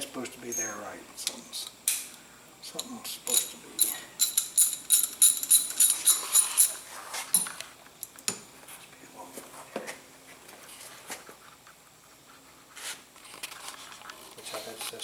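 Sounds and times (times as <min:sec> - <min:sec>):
metal tool clinks: 0:03.3 - 0:06.8.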